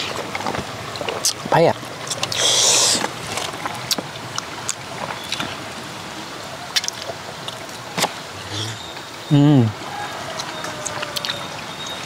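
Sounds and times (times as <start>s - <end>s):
chewing and mouth noises: 0.0s - 5.5s, 6.7s - 8.9s, 10.4s - 12.0s
background hiss: 2.1s - 3.2s.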